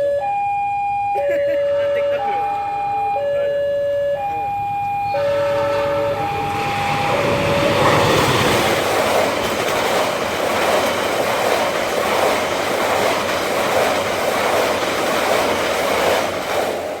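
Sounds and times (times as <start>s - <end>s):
two-tone train horn: 1.2s - 8.8s
train wheels rushing on rails: 1.4s - 17.0s
clickety-clack over rail joints: 4.8s - 17.0s.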